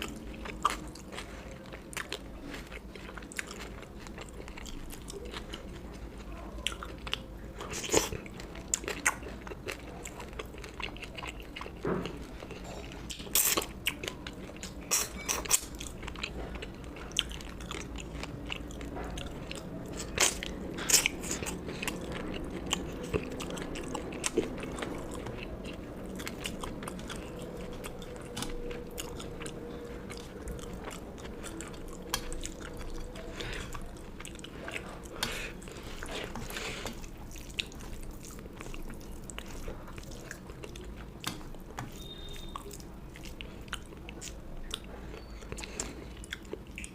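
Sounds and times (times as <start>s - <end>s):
person chewing crunchy food: 0.0s - 46.9s
steady low hum: 0.0s - 46.9s.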